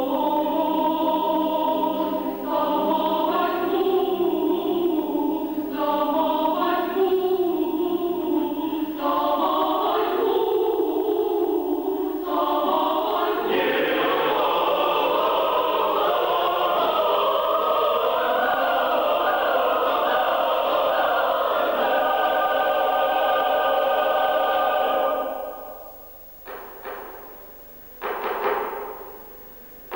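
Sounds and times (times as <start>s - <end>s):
choir singing chords: 0.0s - 28.1s.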